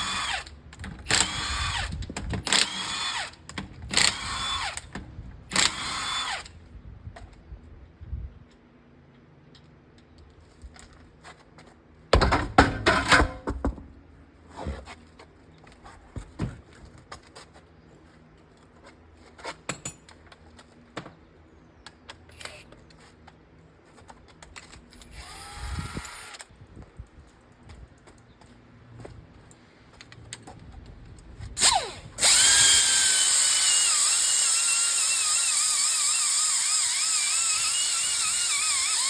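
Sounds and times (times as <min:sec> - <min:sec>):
power tool whirring: 0:00.0 - 0:00.5, 0:01.1 - 0:04.9, 0:05.5 - 0:06.5, 0:25.1 - 0:26.5, 0:31.6 - 0:39.0.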